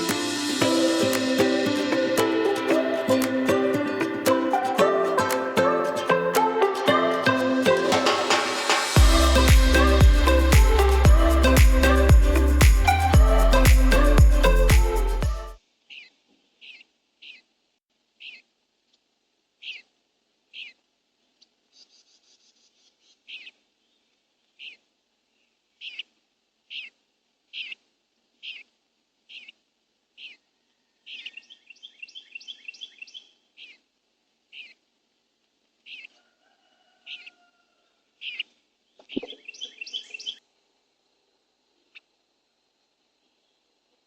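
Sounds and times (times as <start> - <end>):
faint steady hiss: 0.0 - 30.8, 38.0 - 44.0
songbird call notes: 38.2 - 40.4.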